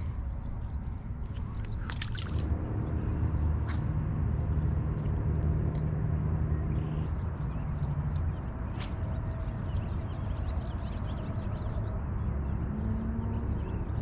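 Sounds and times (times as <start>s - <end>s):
low vehicle engine rumble: 0.0s - 14.0s.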